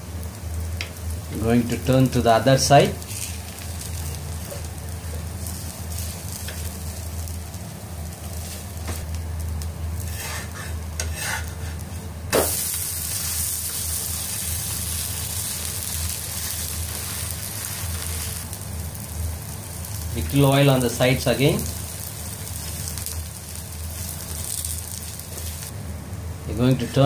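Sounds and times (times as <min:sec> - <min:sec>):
batter sizzling in oil: 0:00.0 - 0:27.0
spatula scraping pan: 0:10.0 - 0:11.9.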